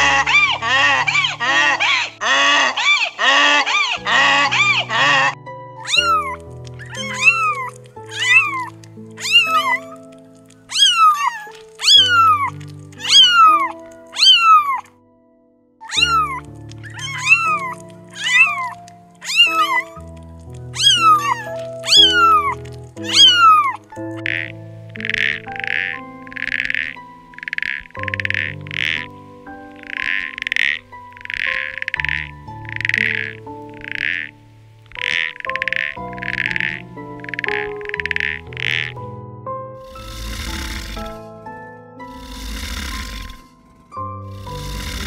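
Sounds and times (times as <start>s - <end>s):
harsh animal calls: 0.0s - 14.9s, 15.8s - 39.0s, 39.8s - 41.3s, 42.0s - 43.6s, 44.2s - 45.0s
kittens mewing: 0.0s - 14.9s, 15.8s - 29.1s, 39.8s - 41.2s
background music: 0.0s - 45.0s.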